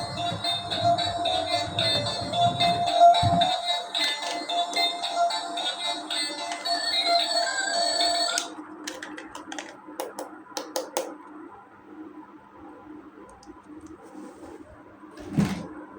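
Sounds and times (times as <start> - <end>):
background music: 0.0 - 8.5
plastic toy parts clicking: 8.4 - 11.0.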